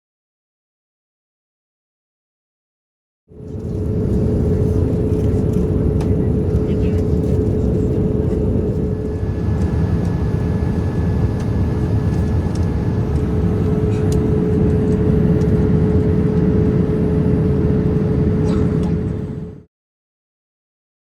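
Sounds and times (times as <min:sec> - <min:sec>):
constant hum tone: 0:03.3 - 0:19.7.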